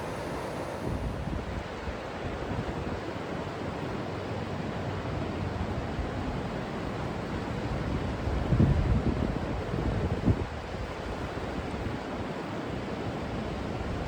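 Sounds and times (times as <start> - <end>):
river water flowing: 0.0 - 1.6
wind buffeting microphone: 0.0 - 2.0.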